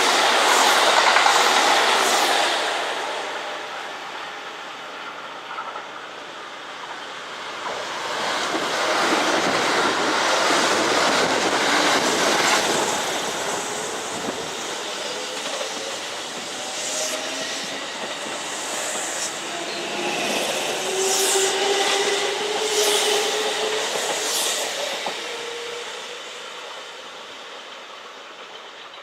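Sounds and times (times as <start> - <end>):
electric train passing: 0.0 - 29.0
train whine sliding in pitch: 7.6 - 27.8.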